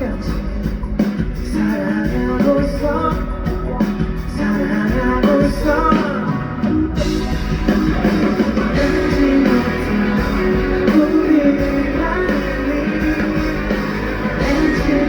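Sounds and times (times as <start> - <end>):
guitar: 0.0 - 15.0
live rock band: 0.0 - 15.0
person singing: 0.0 - 15.0.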